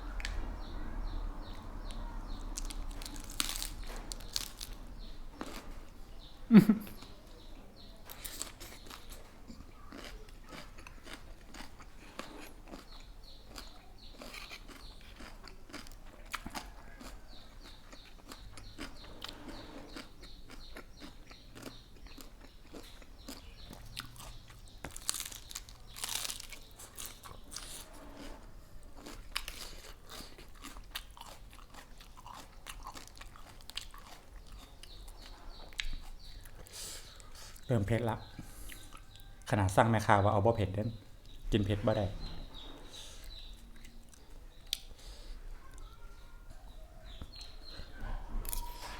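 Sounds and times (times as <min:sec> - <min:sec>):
chewing and crunching food: 0:00.0 - 0:40.0, 0:42.5 - 0:48.9.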